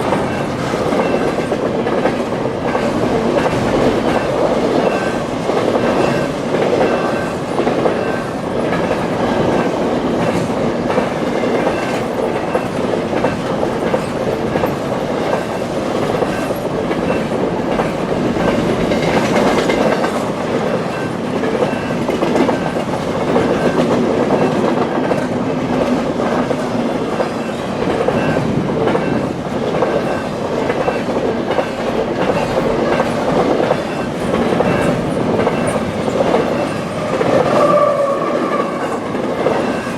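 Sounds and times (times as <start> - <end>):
train wheels clacking on rails: 0.0 - 39.9
crossing bell ringing: 2.5 - 10.6.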